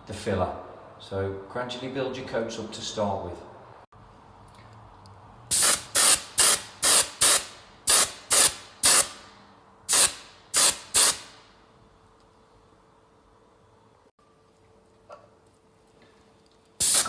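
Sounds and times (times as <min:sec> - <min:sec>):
air spray gun bursts: 0:05.5 - 0:09.3, 0:09.9 - 0:11.5, 0:16.8 - 0:17.0.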